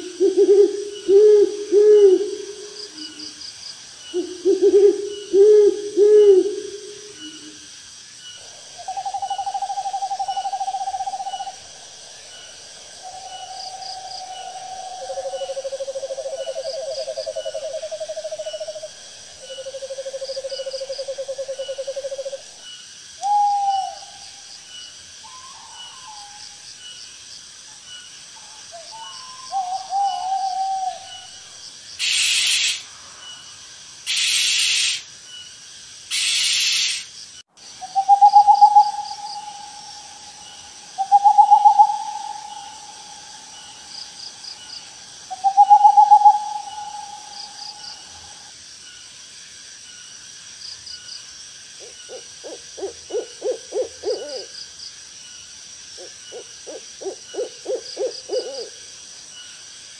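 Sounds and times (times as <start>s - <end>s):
faint insect chirping: 0.0s - 59.9s
owl trilled calls: 0.2s - 3.3s, 4.1s - 7.6s, 8.8s - 11.6s, 23.2s - 24.2s, 28.8s - 31.4s, 32.0s - 32.9s, 34.1s - 35.0s, 36.1s - 37.1s, 37.8s - 43.8s, 45.3s - 48.4s, 52.1s - 54.5s
owl short wavering calls: 23.2s - 24.1s, 32.0s - 32.9s, 34.1s - 35.0s, 36.1s - 37.1s, 37.9s - 42.9s
owl hissing screeches: 32.0s - 32.9s, 34.1s - 35.1s, 36.1s - 37.1s.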